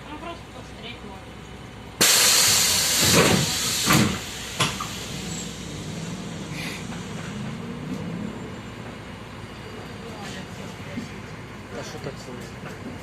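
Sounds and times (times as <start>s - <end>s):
bus engine running: 0.0s - 13.0s
compressed air hissing: 2.0s - 7.2s
bus doors closing with a thump: 2.0s - 9.1s.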